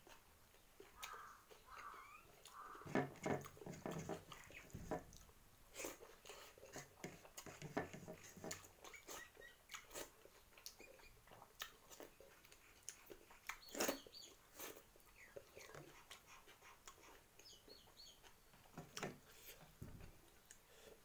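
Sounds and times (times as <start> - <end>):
person chewing: 0.0 - 7.6, 8.5 - 17.5.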